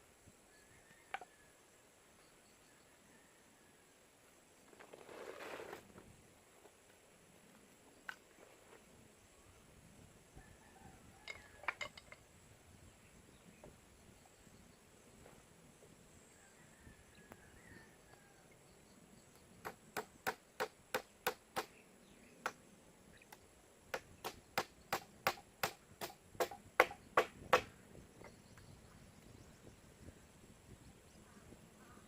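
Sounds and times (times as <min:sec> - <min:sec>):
blade chopping on wood: 0:24.0 - 0:27.7.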